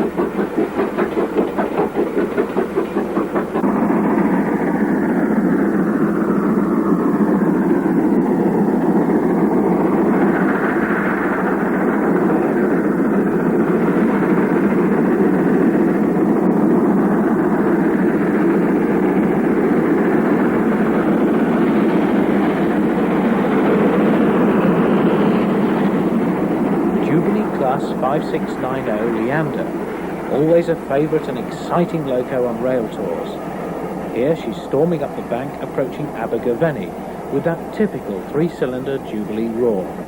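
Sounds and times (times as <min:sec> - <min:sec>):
steam locomotive exhaust: 0:00.0 - 0:40.0.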